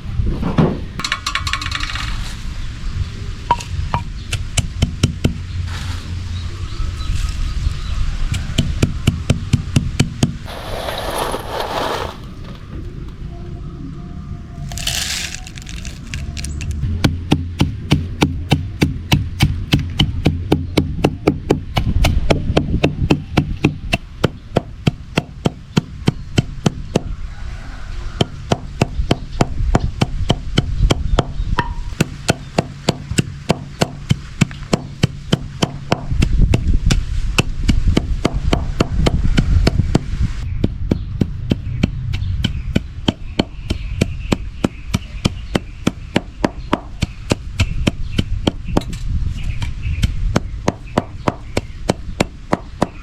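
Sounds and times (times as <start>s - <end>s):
hand tool striking root: 28.2s - 39.8s.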